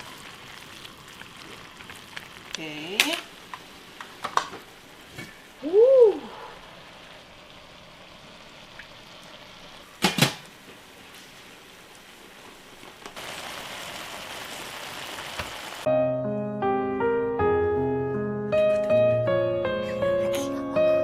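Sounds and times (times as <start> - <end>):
food sizzling in a frying pan: 0.0 - 15.9
piano music: 15.8 - 21.0.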